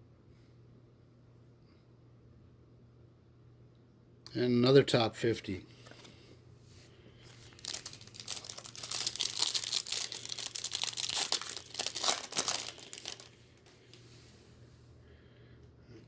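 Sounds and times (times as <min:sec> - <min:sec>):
plastic wrapper tearing and crinkling: 0:07.3 - 0:14.0.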